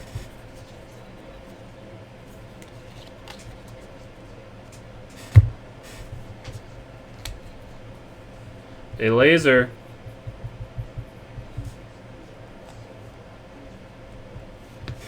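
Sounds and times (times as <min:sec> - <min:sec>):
steady low hum: 0:04.4 - 0:15.0
sharp knock: 0:05.4 - 0:05.6.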